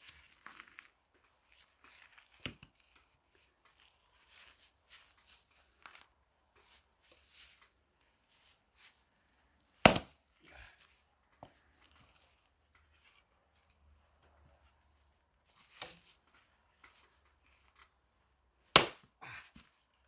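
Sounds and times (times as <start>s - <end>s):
axe striking log: 9.8s - 10.2s, 18.8s - 19.1s.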